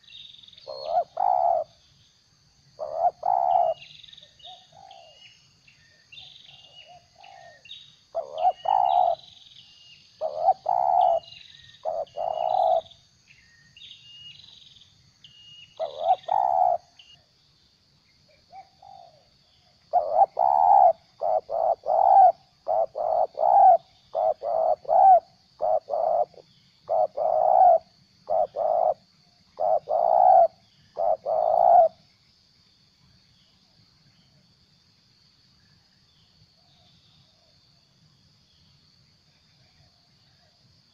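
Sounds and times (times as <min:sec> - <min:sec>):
small birds chirping: 0:00.0 - 0:02.2, 0:02.8 - 0:17.2, 0:18.0 - 0:32.0
faint high insect hum: 0:00.0 - 0:40.9
dove cooing: 0:00.7 - 0:01.8, 0:02.8 - 0:05.2, 0:06.5 - 0:09.3, 0:10.2 - 0:12.9, 0:15.8 - 0:17.0, 0:18.5 - 0:19.3, 0:19.9 - 0:32.0.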